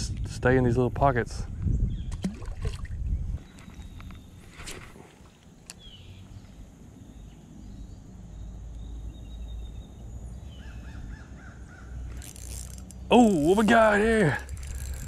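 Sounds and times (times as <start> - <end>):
birds calling: 3.2 - 15.0.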